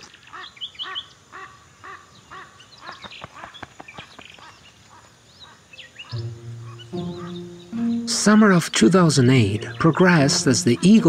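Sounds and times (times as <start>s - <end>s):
bird calling in short notes: 6.0s - 8.1s
high chirps: 6.1s - 11.0s.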